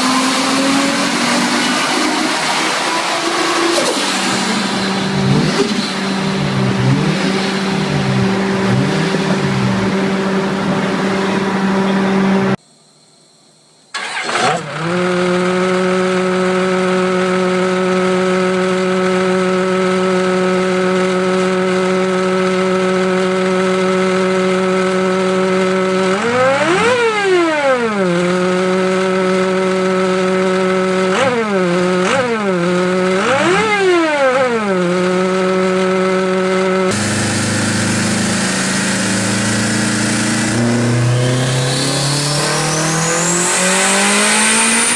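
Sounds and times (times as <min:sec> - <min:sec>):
engine revving: 0:00.0 - 0:12.6, 0:14.0 - 0:44.9
engine starting and idling: 0:13.9 - 0:15.0.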